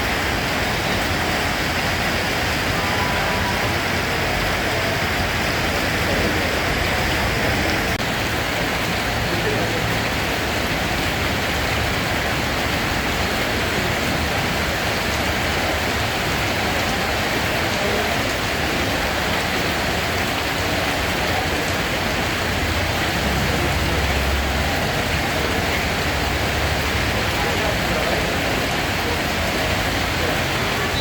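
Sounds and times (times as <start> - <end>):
steady rain hiss: 0.0 - 31.0
low rumble: 2.2 - 5.8.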